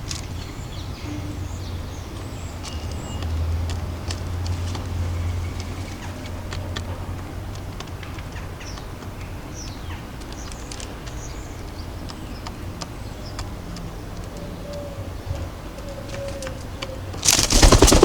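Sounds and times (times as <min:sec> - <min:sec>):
distant city traffic rumble: 0:00.0 - 0:18.0
small birds chirping: 0:00.0 - 0:18.0
sharp taps and clicks: 0:05.6 - 0:14.5.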